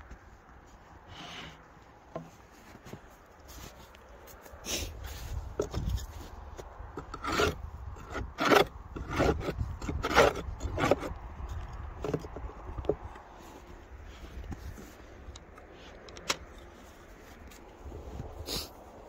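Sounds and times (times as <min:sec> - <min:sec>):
tool scraping wood: 0:05.6 - 0:17.6.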